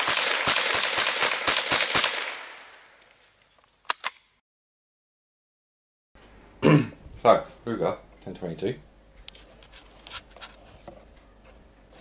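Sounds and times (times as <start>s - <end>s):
sharp clicks: 3.0s - 4.3s.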